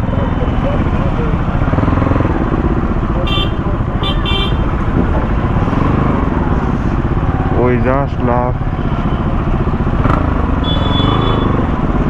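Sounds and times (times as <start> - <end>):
motorcycle engine rumbling: 0.0 - 12.0
horn toots: 3.2 - 4.8, 10.0 - 11.9.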